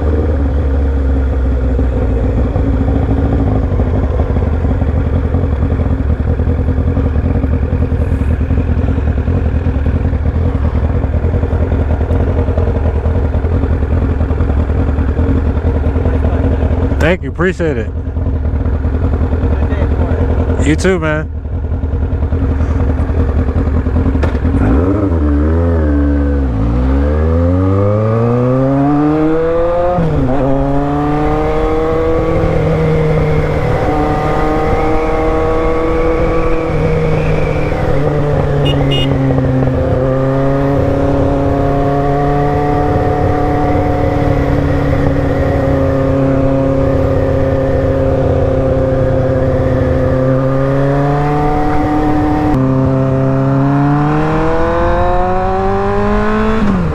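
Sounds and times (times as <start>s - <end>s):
motorcycle engine revving: 0.0s - 56.9s
wind noise: 28.6s - 53.3s.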